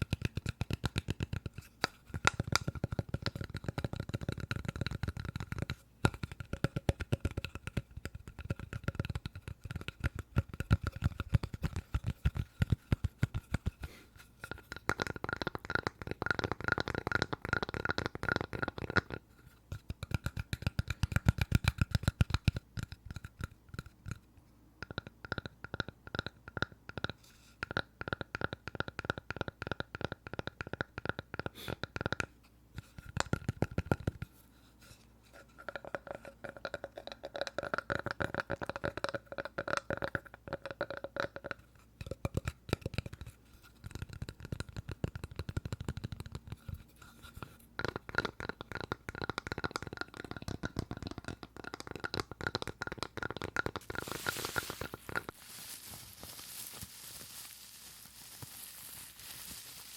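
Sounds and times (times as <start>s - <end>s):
fast tapping on wood: 0.0s - 13.9s.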